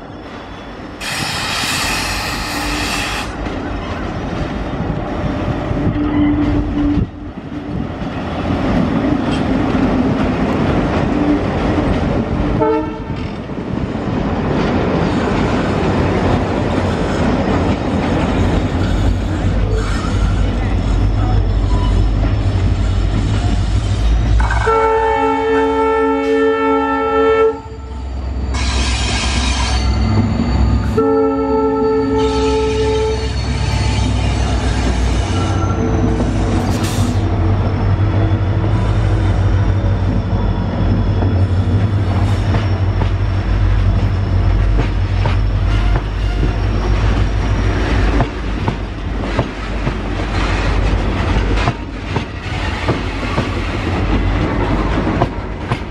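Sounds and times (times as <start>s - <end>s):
diesel locomotives rumbling: 0.0s - 55.9s
wheels clickety-clack on rail joints: 1.0s - 25.1s, 33.6s - 55.9s
locomotive multi-note horn: 12.6s - 13.3s, 24.4s - 30.0s, 30.9s - 36.4s, 45.6s - 46.8s.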